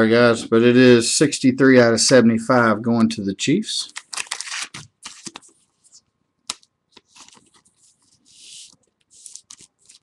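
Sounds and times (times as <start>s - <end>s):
cards and wrapper rustling: 3.9s - 5.6s, 6.5s - 10.0s.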